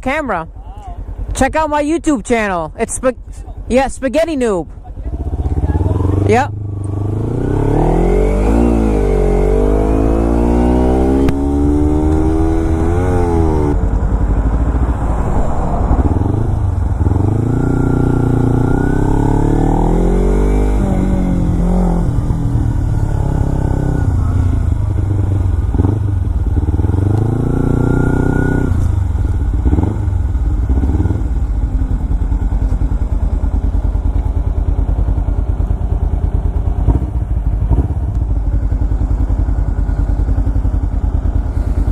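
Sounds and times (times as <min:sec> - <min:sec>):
motorcycle engine accelerating: 0:04.7 - 0:41.9.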